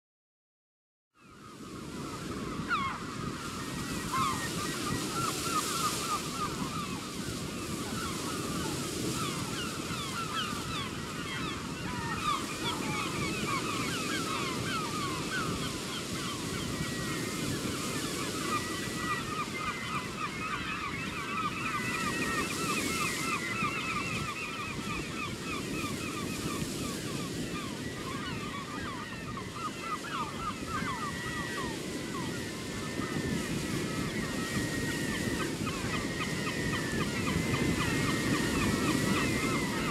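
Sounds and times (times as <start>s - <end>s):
flock of birds calling: 1.2s - 39.9s
wind: 1.2s - 39.9s
surf washing: 1.6s - 39.9s.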